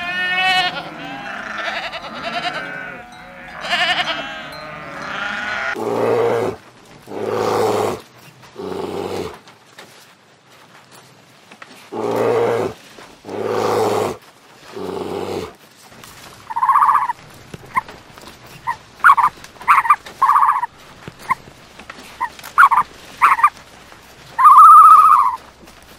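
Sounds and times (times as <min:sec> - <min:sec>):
animal calls: 0:00.0 - 0:08.0, 0:16.5 - 0:17.9, 0:18.5 - 0:21.4, 0:22.1 - 0:23.6, 0:24.3 - 0:25.5.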